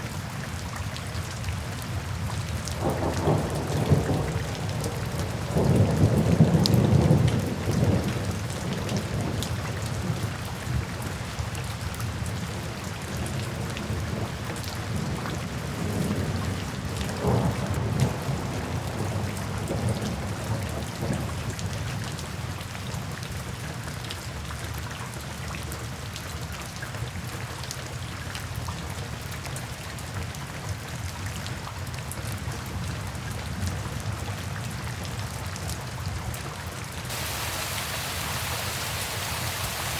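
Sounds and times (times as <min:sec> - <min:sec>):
steady rain falling: 0:00.0 - 0:23.2, 0:37.0 - 0:39.9
thunder rumbling: 0:37.1 - 0:39.9.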